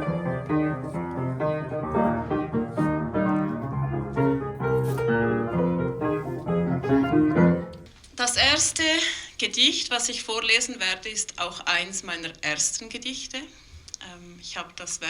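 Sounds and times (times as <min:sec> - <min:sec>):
solo piano: 0:00.0 - 0:07.9.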